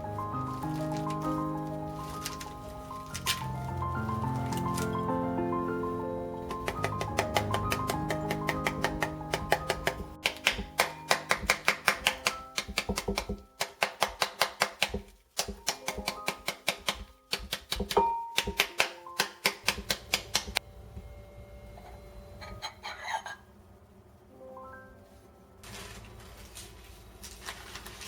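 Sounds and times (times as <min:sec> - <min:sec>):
background music: 0:00.0 - 0:20.6
rapid sharp knocks: 0:06.6 - 0:18.8.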